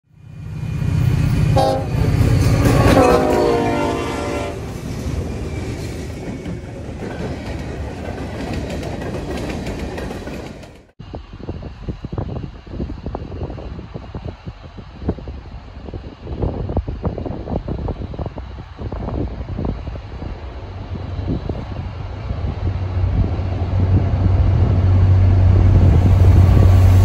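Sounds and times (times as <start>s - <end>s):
diesel locomotive engine: 0.0s - 27.0s
train rumbling past: 0.1s - 27.0s
train air horn chord: 1.6s - 4.7s
gusty rumble: 11.0s - 27.0s.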